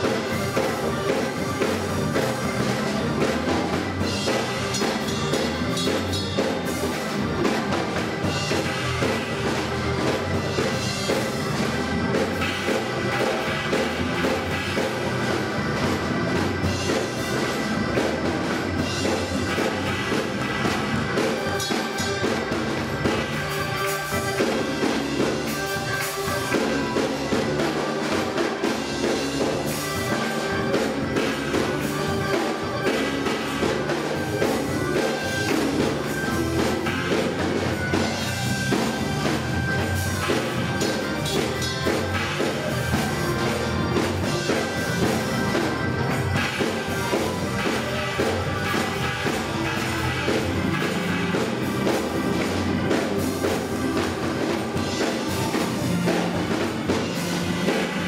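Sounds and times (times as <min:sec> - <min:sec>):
bass line: 0:00.0 - 0:58.0
drum kit: 0:00.0 - 0:58.0
gospel band playing: 0:00.0 - 0:58.0.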